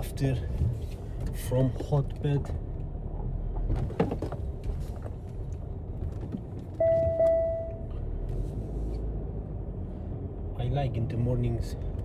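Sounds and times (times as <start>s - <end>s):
electronic beep: 6.8s - 7.7s.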